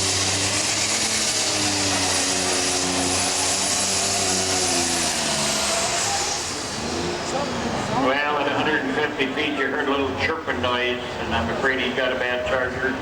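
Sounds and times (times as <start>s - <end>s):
tractor engine running hard: 0.0s - 12.1s
announcer speaking: 8.0s - 13.0s.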